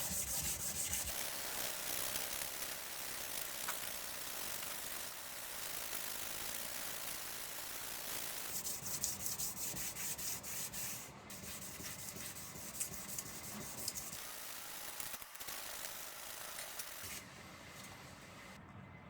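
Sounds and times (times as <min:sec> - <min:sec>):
knife blade rubbing and sanding: 0:08.6 - 0:14.1.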